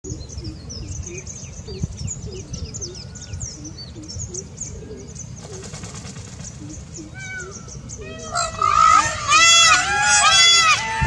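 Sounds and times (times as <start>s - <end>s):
steady low rumble: 0.0s - 9.3s
small birds chirping: 0.0s - 9.9s.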